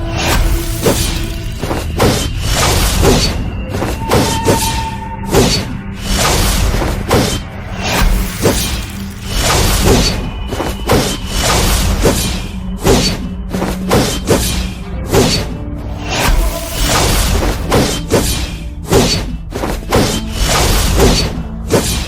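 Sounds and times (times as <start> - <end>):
music with thudding beat: 0.0 - 22.0.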